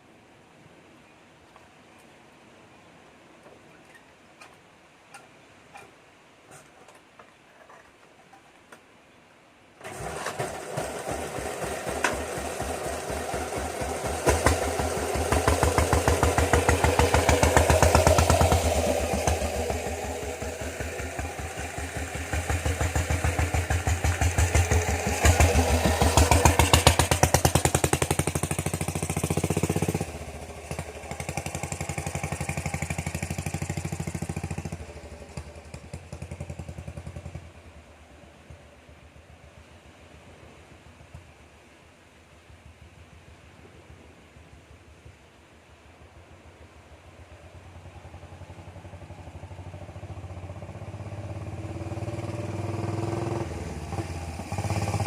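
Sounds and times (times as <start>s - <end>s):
diesel motorcycle engine revving: 9.8s - 37.8s, 47.3s - 55.0s.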